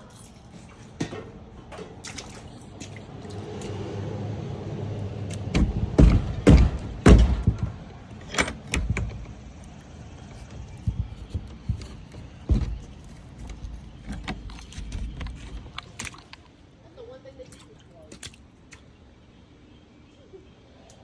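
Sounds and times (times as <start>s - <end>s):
heavy thuds and knocks: 5.4s - 9.5s, 10.4s - 16.2s.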